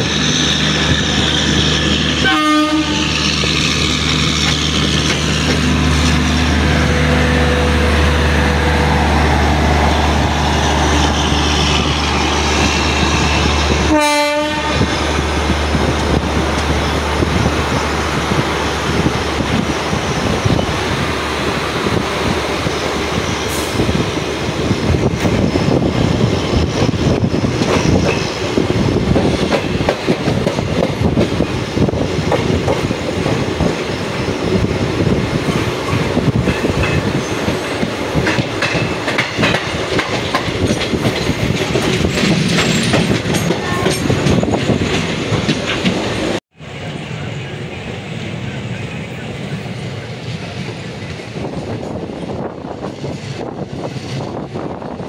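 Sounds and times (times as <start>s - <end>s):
train wheels rumbling: 0.0s - 55.0s
wheels clicking over rail joints: 3.4s - 6.3s, 35.5s - 46.4s.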